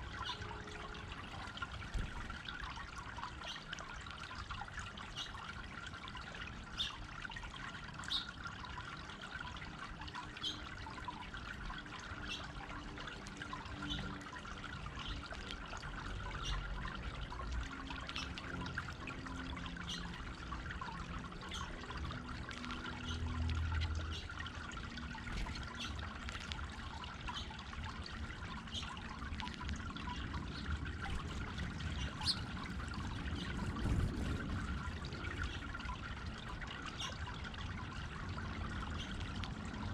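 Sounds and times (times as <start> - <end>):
water pouring over stone fountain: 0.0 - 39.9.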